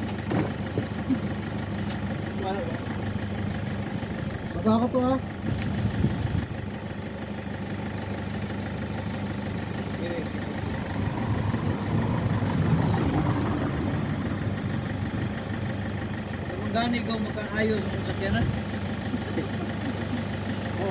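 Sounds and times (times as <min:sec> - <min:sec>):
car engine idling: 0:00.0 - 0:20.9.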